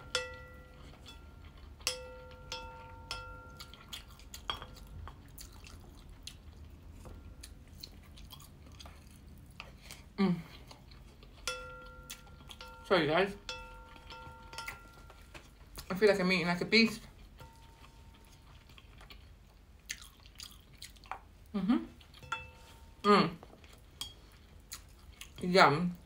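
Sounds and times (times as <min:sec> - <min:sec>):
plate ringing: 0:00.0 - 0:03.8, 0:11.5 - 0:15.4, 0:17.4 - 0:18.0
chewing with mouth clicks: 0:00.8 - 0:12.7, 0:17.2 - 0:22.3, 0:23.4 - 0:25.4.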